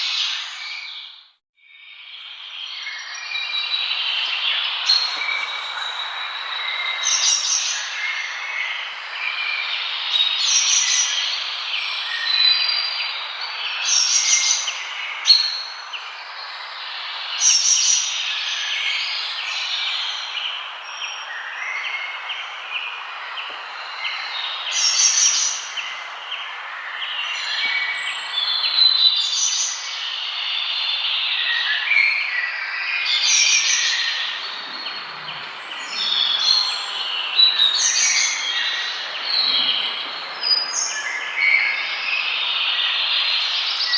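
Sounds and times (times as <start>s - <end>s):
songbirds singing and calling: 0.0s - 43.9s
steady hiss: 4.8s - 9.0s.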